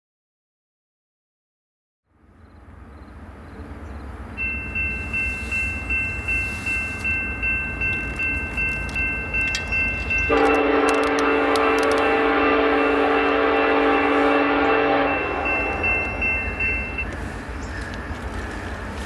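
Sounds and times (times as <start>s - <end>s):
diesel freight train rumbling: 2.1s - 19.0s
crossing bell dinging: 4.3s - 19.0s
locomotive air horn blast: 10.3s - 16.1s.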